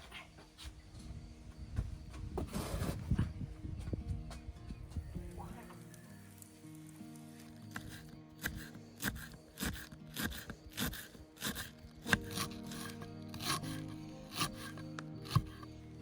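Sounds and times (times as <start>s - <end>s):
background music: 1.1s - 16.0s
knife sawing through bread: 7.7s - 15.7s.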